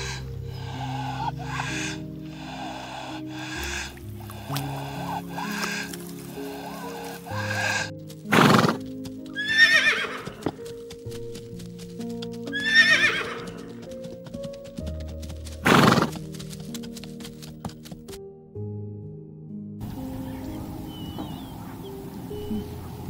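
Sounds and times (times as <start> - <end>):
horse snorts: 0.0 - 8.9, 15.6 - 16.2
horses whinnying: 0.0 - 10.7, 12.4 - 14.0, 15.6 - 16.2
hoofbeats: 0.0 - 18.3, 19.9 - 23.0
soft background music: 0.0 - 23.0.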